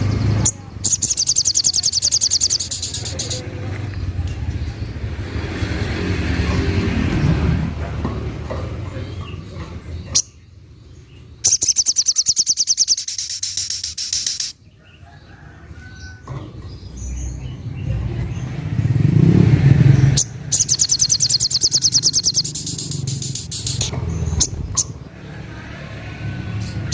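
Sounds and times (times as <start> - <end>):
bird rapid rattling song: 0.0 - 3.4, 8.8 - 14.8, 16.1 - 25.1.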